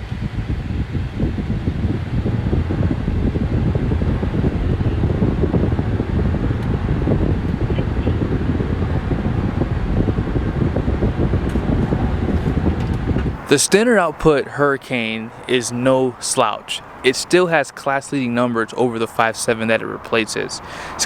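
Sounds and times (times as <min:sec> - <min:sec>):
suv engine accelerating: 0:00.0 - 0:17.6
road noise: 0:00.0 - 0:21.0.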